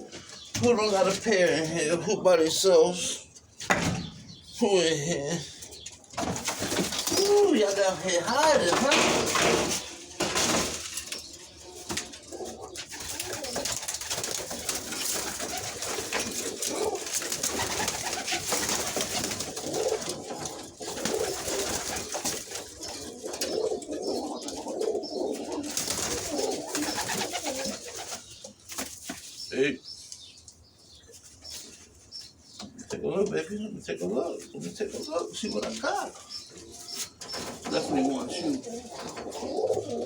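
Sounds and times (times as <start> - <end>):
pigeons cooing: 4.1 - 28.6, 33.5 - 40.0.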